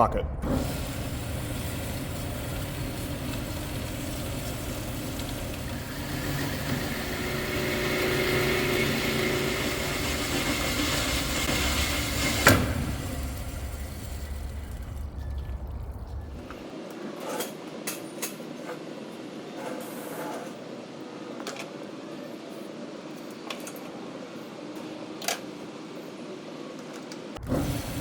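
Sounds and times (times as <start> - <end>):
power saw cutting steel: 0.4 - 15.2.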